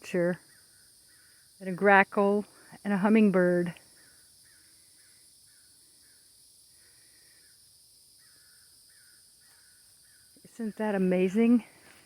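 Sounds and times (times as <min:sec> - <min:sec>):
distant bird calling: 0:00.0 - 0:01.7, 0:03.8 - 0:11.7
crickets droning: 0:00.0 - 0:12.0.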